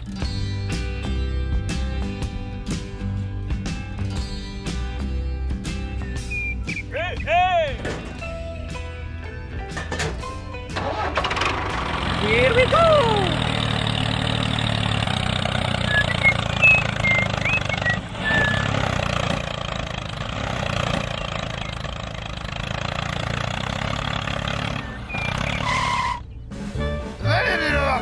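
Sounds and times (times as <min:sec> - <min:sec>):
tractor engine idling: 0:06.2 - 0:28.0.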